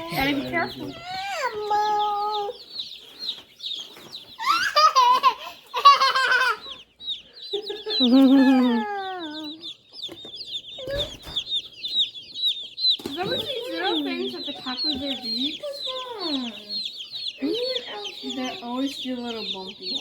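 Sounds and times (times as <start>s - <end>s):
chicks peeping: 0.0s - 20.0s
child laughing: 4.4s - 6.8s, 7.5s - 9.7s, 10.8s - 11.3s.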